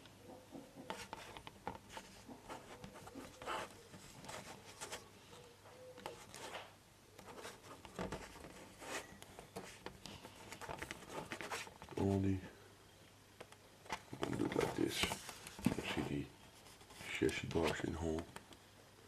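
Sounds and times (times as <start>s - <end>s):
plastic rubbing and scraping: 5.9s - 12.3s, 13.8s - 18.4s.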